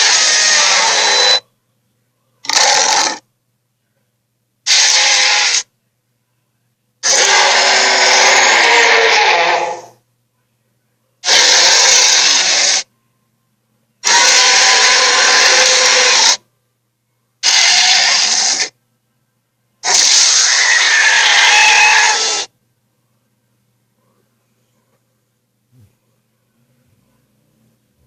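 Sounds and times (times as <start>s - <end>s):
harsh monster roars: 0.0s - 1.4s, 2.5s - 3.2s, 4.7s - 5.6s, 7.0s - 9.9s, 11.2s - 12.8s, 14.0s - 16.4s, 17.4s - 18.7s, 19.8s - 22.5s.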